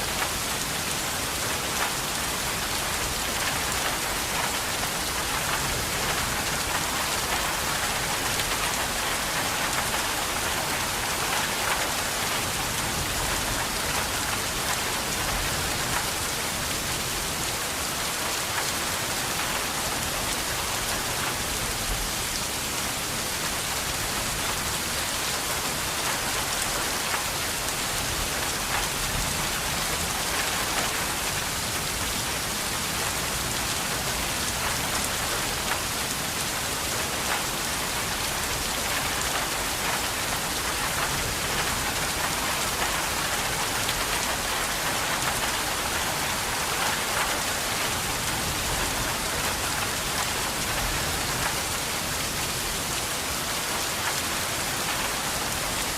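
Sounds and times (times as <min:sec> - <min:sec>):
steady rain pattering: 0:00.0 - 0:55.9.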